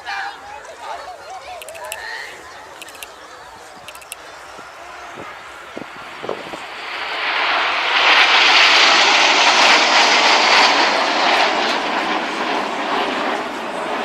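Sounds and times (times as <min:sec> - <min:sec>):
jet aircraft flying past: 0:05.0 - 0:14.0.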